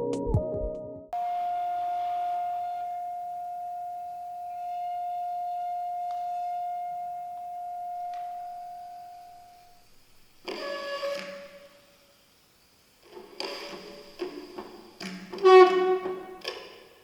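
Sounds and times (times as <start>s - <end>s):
singing bowl tone: 1.2s - 9.8s
faint high ringing: 1.2s - 10.4s.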